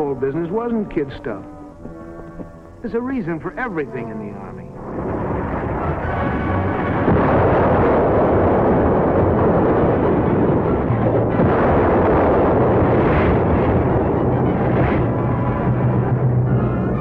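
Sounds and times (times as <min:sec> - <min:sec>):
explosions and artillery fire: 0:04.8 - 0:17.0.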